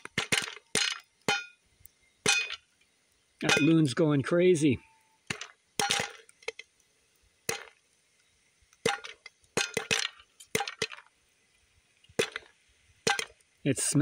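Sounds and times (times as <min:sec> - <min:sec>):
popcorn popping in a pot: 0:00.0 - 0:01.6, 0:05.3 - 0:06.6, 0:07.4 - 0:07.8, 0:08.8 - 0:11.1, 0:12.1 - 0:13.4.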